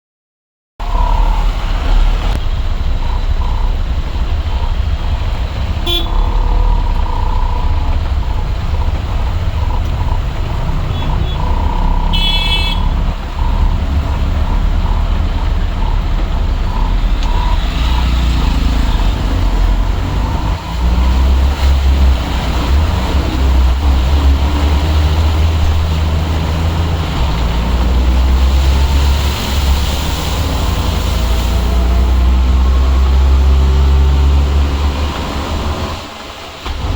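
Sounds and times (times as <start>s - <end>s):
heavy traffic engine rumble: 0.8s - 36.9s
vehicle horns honking: 5.7s - 6.8s, 10.7s - 14.3s
high-pitched horn: 5.8s - 6.8s, 10.9s - 14.3s.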